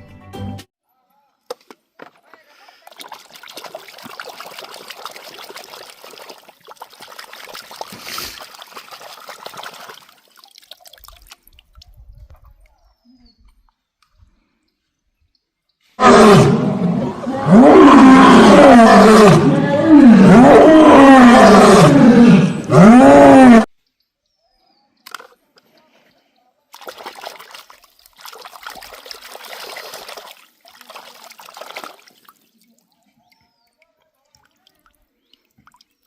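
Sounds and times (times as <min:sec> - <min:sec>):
loud roaring call: 0:16.0 - 0:23.7.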